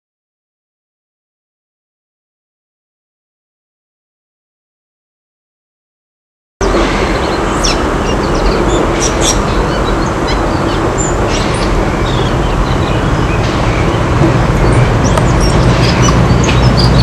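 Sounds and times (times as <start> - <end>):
birds chirping: 6.6 - 17.0
locomotive engine running: 6.6 - 17.0.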